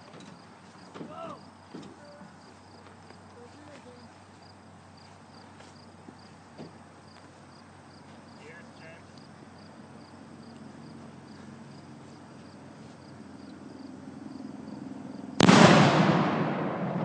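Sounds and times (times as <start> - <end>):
cannon firing boom: 15.3 - 17.0.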